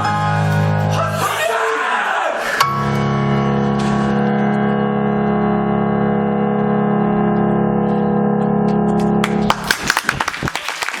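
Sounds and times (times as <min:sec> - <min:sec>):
audience applause: 0:09.2 - 0:11.0.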